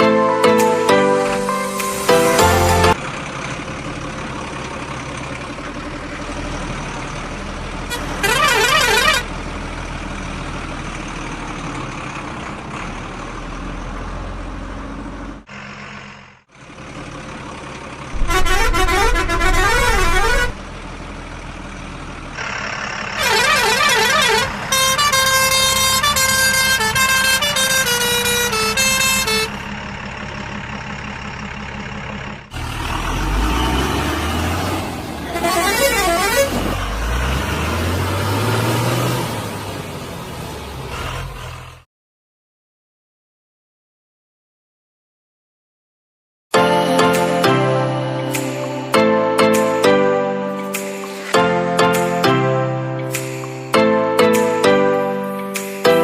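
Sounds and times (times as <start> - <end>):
horn playing a tune: 0.5 - 3.0, 18.2 - 20.6
truck engine running: 0.6 - 41.8
warbling horn blasts: 7.9 - 9.3, 18.2 - 20.6, 35.3 - 36.7.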